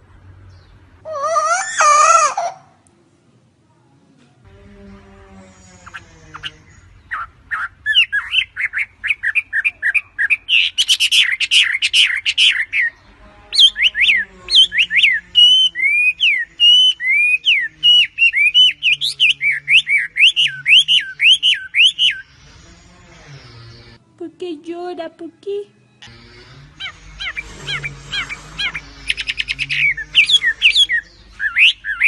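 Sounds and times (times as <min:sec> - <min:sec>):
bird singing: 0:05.0 - 0:24.0, 0:25.6 - 0:32.0.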